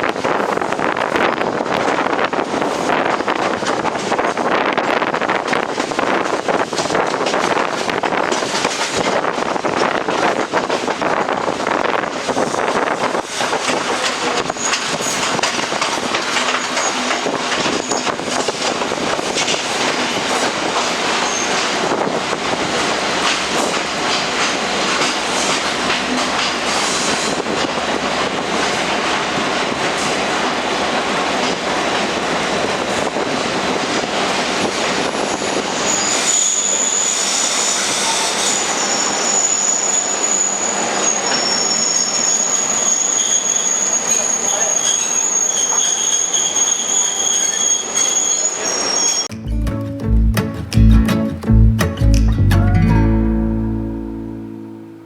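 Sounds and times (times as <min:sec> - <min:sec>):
train wheels rattling on track: 0:00.0 - 0:49.3
high wheel squeal: 0:16.6 - 0:18.2, 0:21.2 - 0:21.6, 0:35.1 - 0:49.3.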